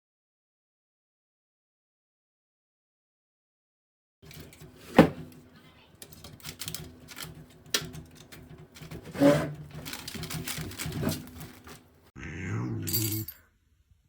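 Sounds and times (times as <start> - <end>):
light knocks and clatter: 4.2 - 12.1.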